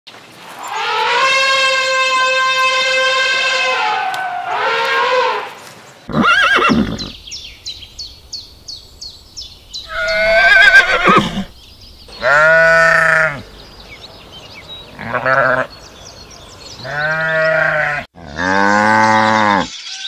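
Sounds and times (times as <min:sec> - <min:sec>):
elephant call: 0:00.6 - 0:05.6
horse whinnying: 0:06.1 - 0:07.2, 0:09.9 - 0:11.6.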